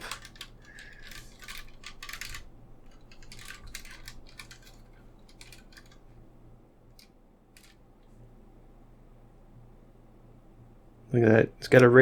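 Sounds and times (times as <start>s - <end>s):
model car clicks and rattles: 0.0s - 6.2s, 6.9s - 7.8s
faint steady hum: 0.0s - 12.0s.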